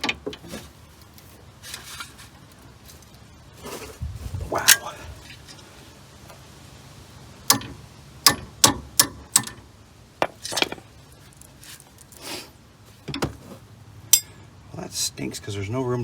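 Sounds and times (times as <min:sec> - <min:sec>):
metallic clicks of hand tools: 0:08.3 - 0:09.6.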